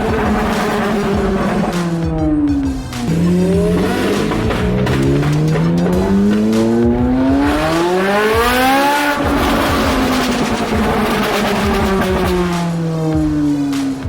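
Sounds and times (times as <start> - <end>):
sports car engine accelerating: 0.0 - 14.0.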